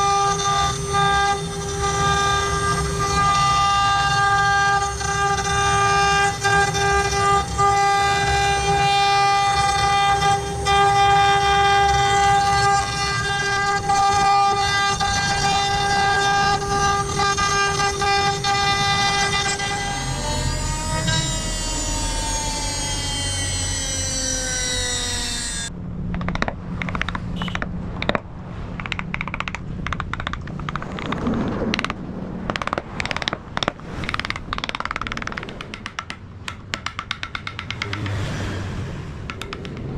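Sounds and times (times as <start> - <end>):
router spindle whining down: 0.0 - 25.8
irregular clicks and knocks: 25.5 - 38.2, 39.2 - 39.9.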